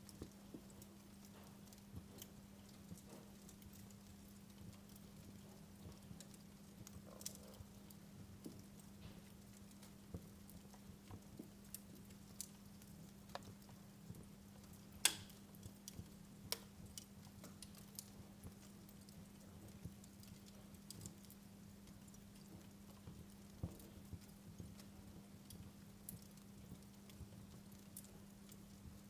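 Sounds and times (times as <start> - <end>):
wood fire crackling: 0.0 - 29.0
sharp fire pops: 15.0 - 15.6.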